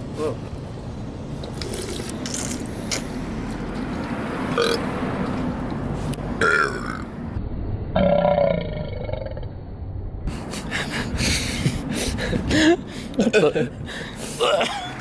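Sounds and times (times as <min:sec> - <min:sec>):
outdoor background noise: 0:00.0 - 0:15.0
person burping: 0:06.4 - 0:07.1, 0:08.0 - 0:09.5.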